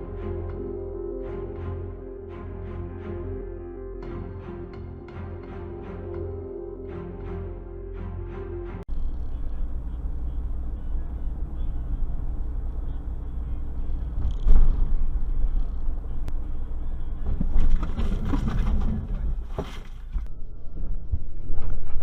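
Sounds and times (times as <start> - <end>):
car driving low rumble: 8.9 - 20.3
rough road noise: 8.9 - 20.3.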